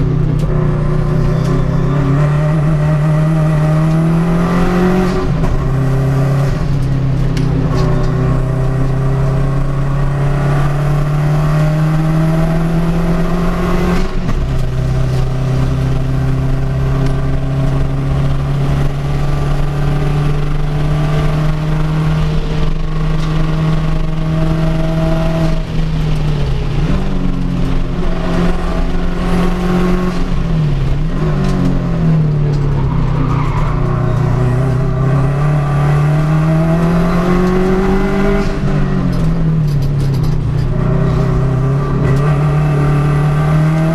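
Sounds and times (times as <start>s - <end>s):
race car engines accelerating: 0.0s - 43.9s.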